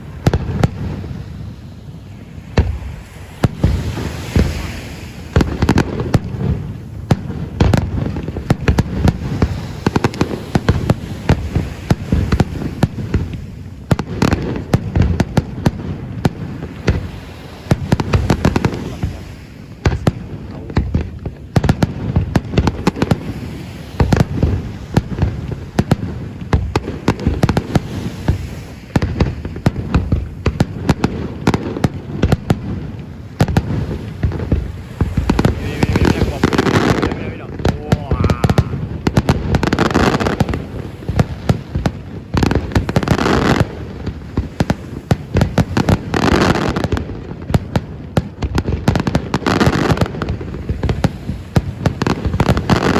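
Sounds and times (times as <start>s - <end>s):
fireworks bangs and crackles: 0.0s - 52.9s.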